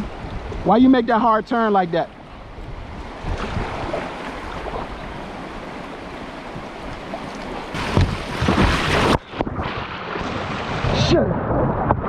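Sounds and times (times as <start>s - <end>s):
river rapids rushing: 7.7s - 9.2s.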